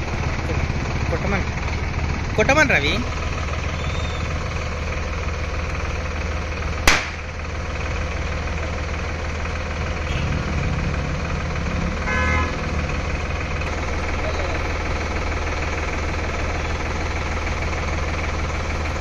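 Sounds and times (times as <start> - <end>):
tractor diesel engine idling: 0.0 - 19.0
sharp crack: 6.8 - 7.3
short horn toot: 12.0 - 12.6.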